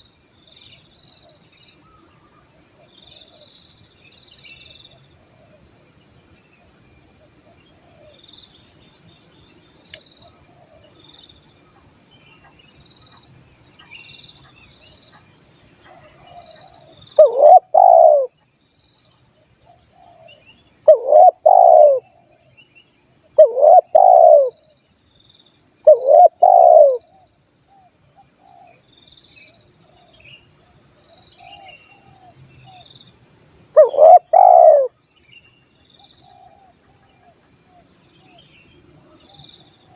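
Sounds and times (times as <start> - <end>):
dove cooing: 15.9 - 18.3, 20.9 - 22.1, 23.4 - 24.6, 25.8 - 27.1, 33.8 - 34.9.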